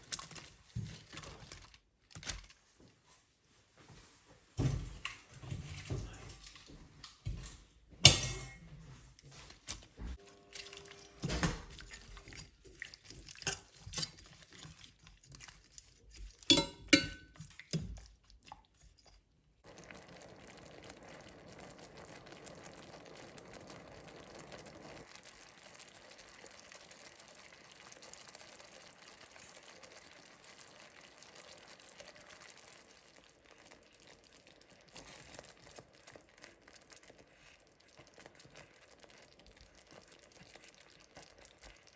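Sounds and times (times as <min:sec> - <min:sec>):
utensils clinking against dishes: 0:08.1 - 0:08.6, 0:16.5 - 0:17.4.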